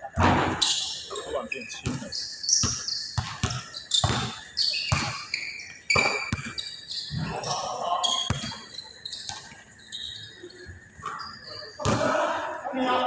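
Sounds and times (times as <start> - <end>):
sneaker squeaks: 0.0 - 12.4
basketball bouncing on a court: 0.4 - 9.5, 11.8 - 12.3.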